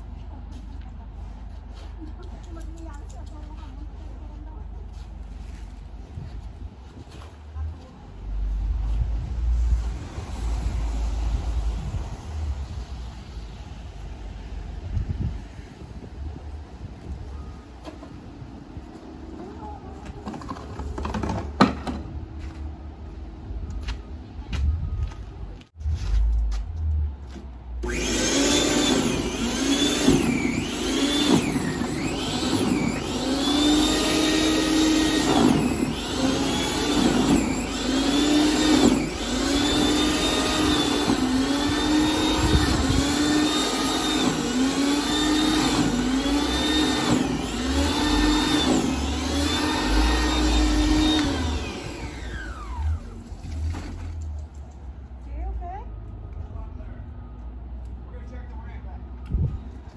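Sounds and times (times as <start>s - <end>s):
snowblower motor running: 27.8s - 53.4s.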